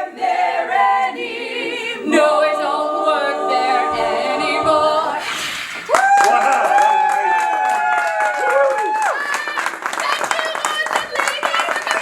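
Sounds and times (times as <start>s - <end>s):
women singing in harmony: 0.0s - 5.6s.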